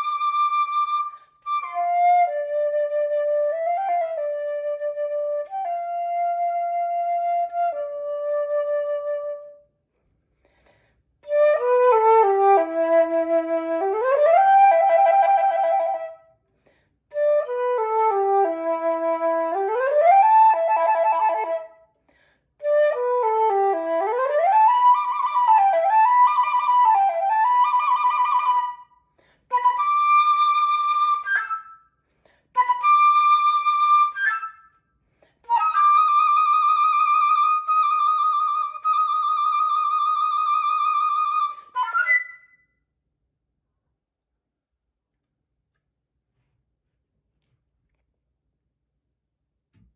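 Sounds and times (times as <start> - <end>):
solo flute playing: 0.0 - 9.7, 11.2 - 16.4, 17.1 - 21.9, 22.6 - 32.0, 32.6 - 42.8.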